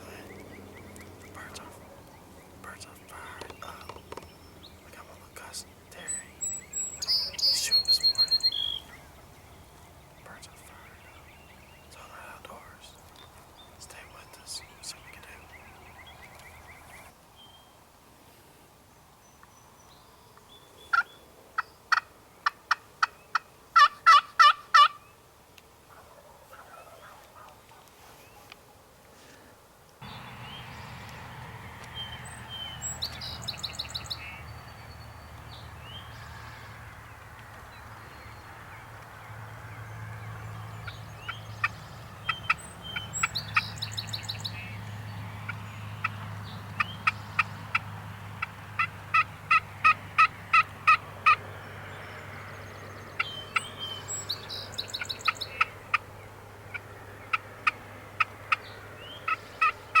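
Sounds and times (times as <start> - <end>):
turkey yelping: 23.8 - 25.0
turkeys gobbling: 23.8 - 25.0, 48.4 - 51.4, 59.3 - 60.0.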